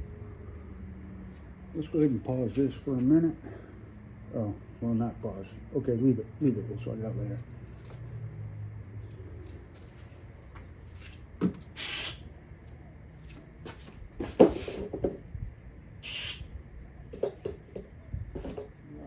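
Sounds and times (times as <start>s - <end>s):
aerosol can hissing squirts: 11.7s - 12.2s, 16.0s - 16.5s.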